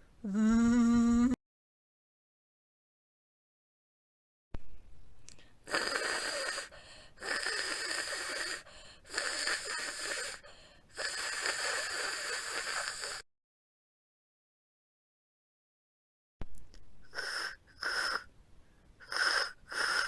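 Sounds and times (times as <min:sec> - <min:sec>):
person making hissing consonant: 0:05.7 - 0:13.2, 0:17.1 - 0:18.3, 0:19.0 - 0:20.0.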